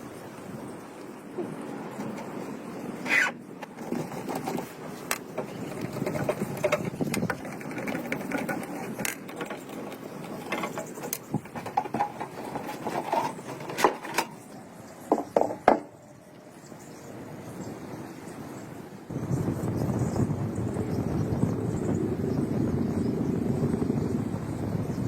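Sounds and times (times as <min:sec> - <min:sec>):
mechanical rattling and clicks: 0:03.6 - 0:14.4.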